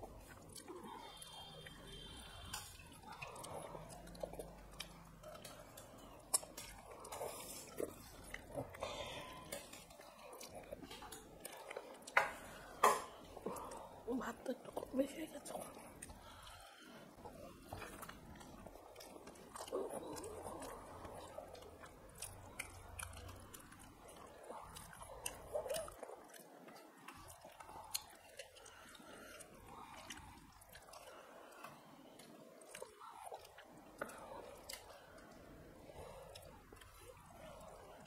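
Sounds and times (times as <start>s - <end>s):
people chewing food: 0.0s - 38.0s.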